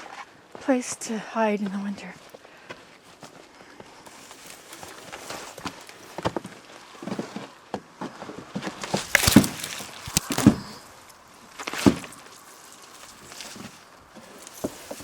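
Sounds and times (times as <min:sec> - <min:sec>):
footsteps: 0:01.6 - 0:15.0
brushing and scraping: 0:04.1 - 0:07.5, 0:08.6 - 0:15.0
objects knocking and thudding: 0:08.6 - 0:10.8, 0:11.6 - 0:12.4.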